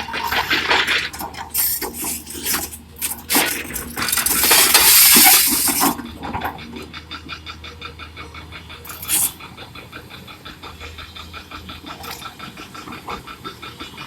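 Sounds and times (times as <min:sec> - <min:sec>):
hard objects clattering: 0:00.0 - 0:06.2
rushing clatter: 0:00.0 - 0:14.0.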